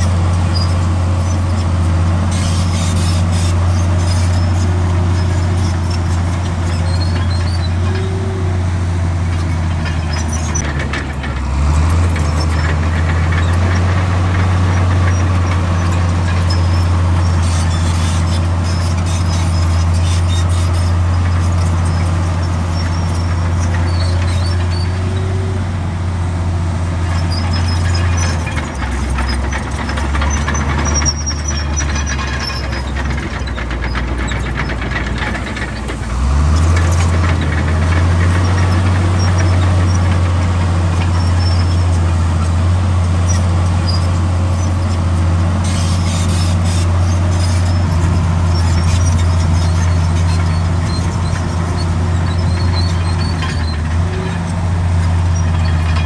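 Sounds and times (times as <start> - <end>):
diesel earthmoving machine running: 0.0 - 56.0
high-pitched squeaks: 2.3 - 8.4, 45.6 - 56.0.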